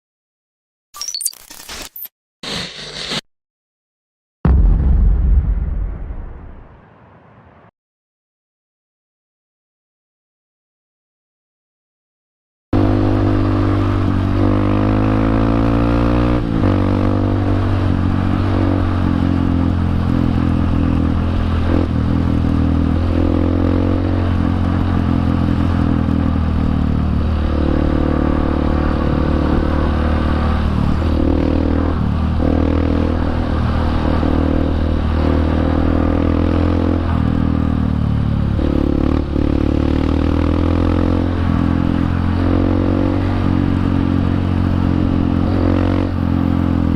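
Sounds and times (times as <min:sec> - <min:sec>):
motorcycle engine revving: 0:12.8 - 0:46.9.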